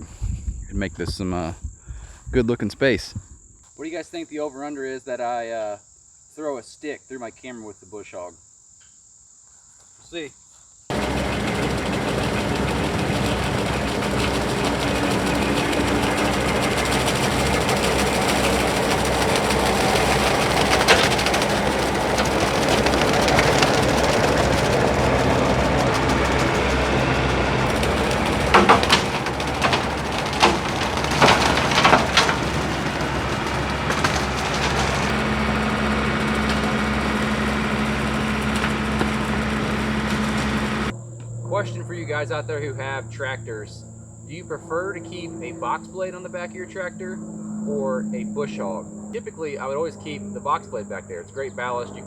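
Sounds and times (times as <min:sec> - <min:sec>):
tractor diesel engine running: 0:10.9 - 0:40.9
wood snapping: 0:10.9 - 0:40.9.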